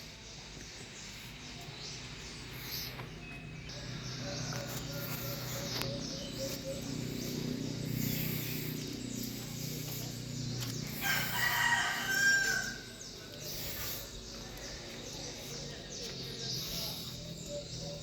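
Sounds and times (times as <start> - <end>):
rooster crowing: 10.9 - 13.1.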